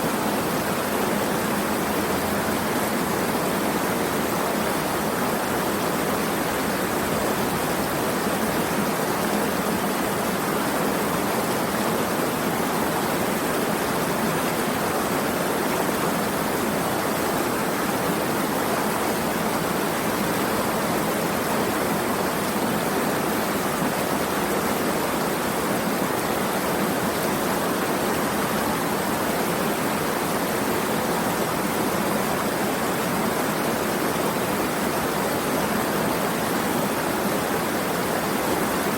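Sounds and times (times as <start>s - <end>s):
flowing water rushing: 0.0s - 38.9s.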